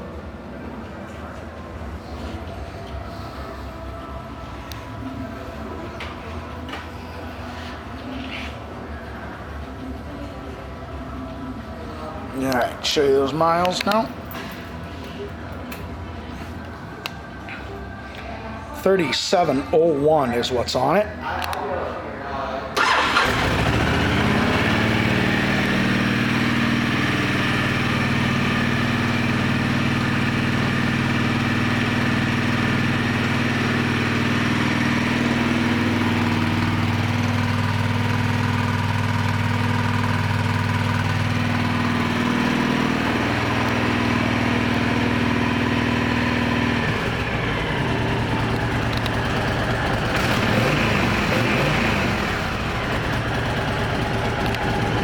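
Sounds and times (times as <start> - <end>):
motorcycle engine idling: 22.8 - 55.0.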